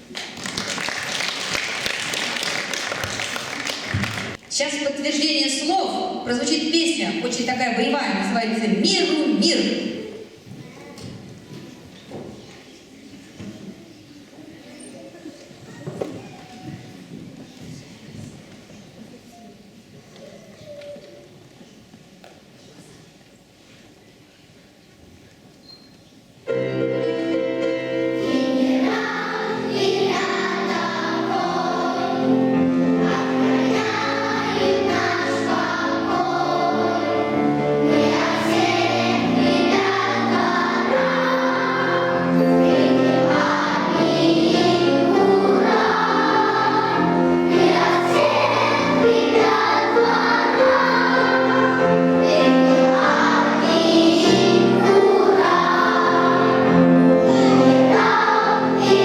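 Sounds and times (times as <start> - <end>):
backing music: 26.5 - 59.0
children's choir singing: 26.5 - 59.0.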